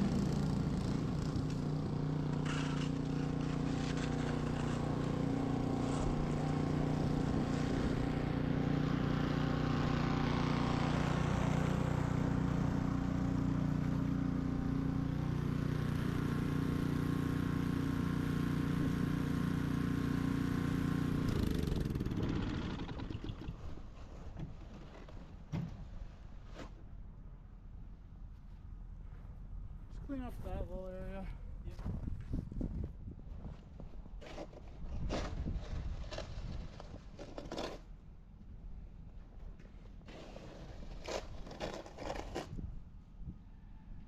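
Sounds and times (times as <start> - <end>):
snow blower engine running: 0.0 - 23.6.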